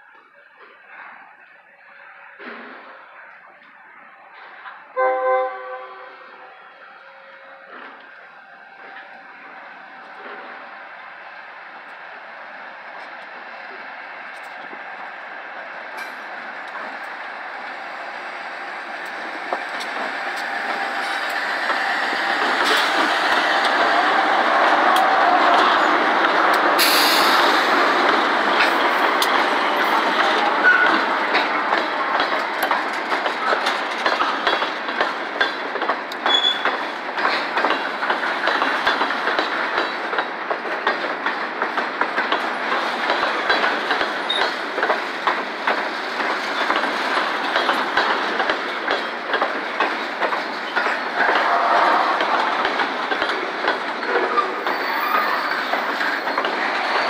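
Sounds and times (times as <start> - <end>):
diesel locomotive passing: 0.0 - 57.0
wheels clicking over rail joints: 27.7 - 57.0.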